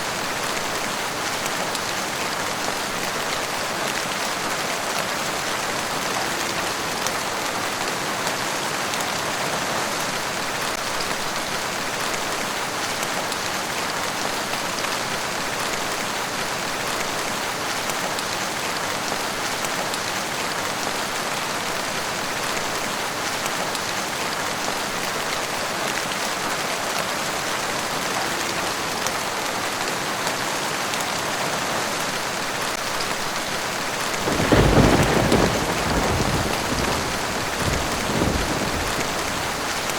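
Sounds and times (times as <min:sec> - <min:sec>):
steady rainfall patter: 0:00.0 - 0:39.9
thunder rumble: 0:34.0 - 0:39.9.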